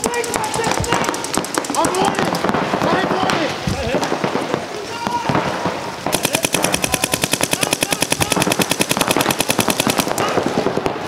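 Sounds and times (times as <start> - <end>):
paintball marker firing: 0.0 - 2.9, 6.1 - 10.8.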